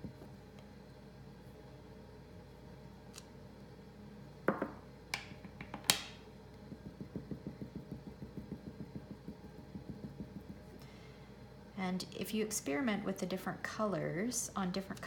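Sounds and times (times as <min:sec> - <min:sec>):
rubber stamp knocking on table: 0:04.5 - 0:04.8
sponge dauber tapping: 0:06.7 - 0:10.7.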